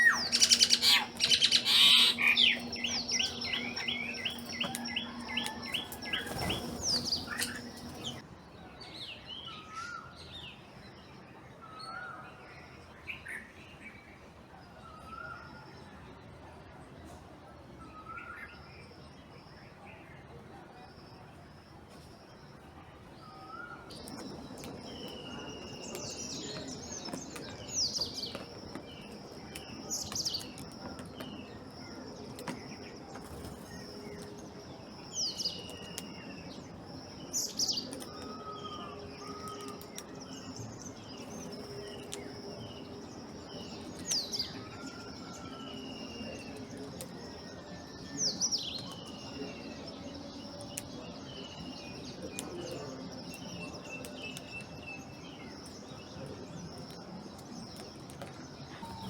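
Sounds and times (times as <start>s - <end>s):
birds chirping: 0.0s - 8.2s, 23.6s - 59.0s
high-pitched hum: 0.0s - 8.2s
soft whistled bird notes: 22.0s - 59.0s.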